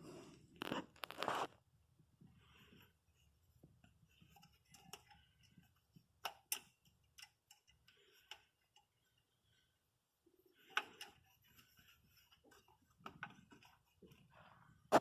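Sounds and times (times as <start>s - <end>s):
faint clicks and taps: 3.6s - 9.2s.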